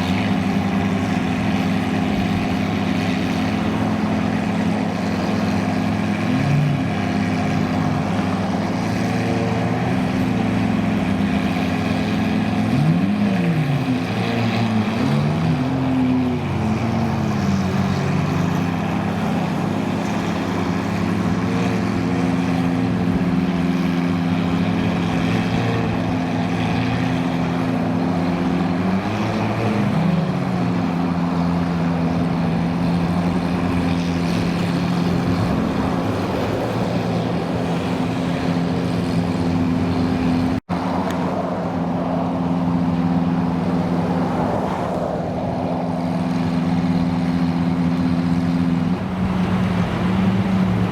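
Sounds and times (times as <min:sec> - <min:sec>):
supercar engines idling: 0:00.0 - 0:15.0, 0:46.0 - 0:50.9
engine throttle blips: 0:00.0 - 0:50.9.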